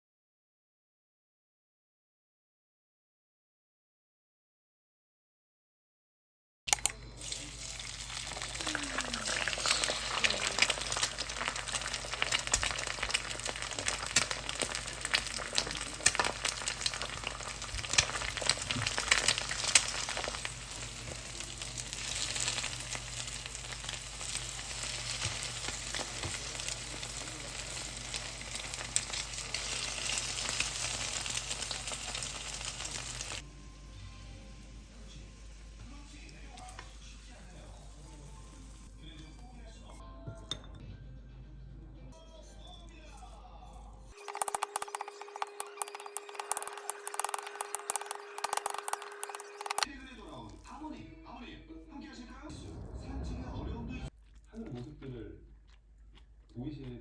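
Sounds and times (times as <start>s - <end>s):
stirring clicks and scrapes: 6.8s - 22.7s, 43.8s - 50.6s
food sizzling in a frying pan: 7.0s - 38.9s, 44.1s - 49.9s.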